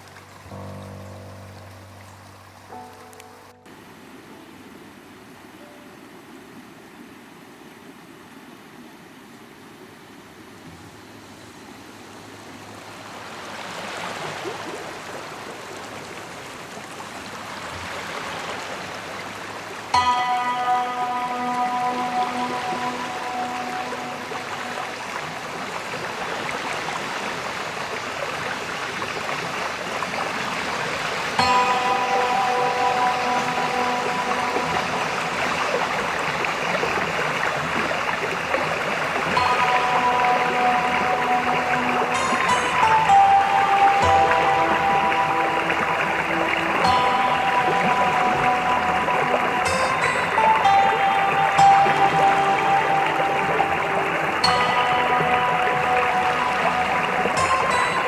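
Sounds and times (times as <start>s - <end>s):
soft held musical tones: 0.0s - 7.0s, 16.3s - 58.0s
river water over rocks: 0.0s - 58.0s.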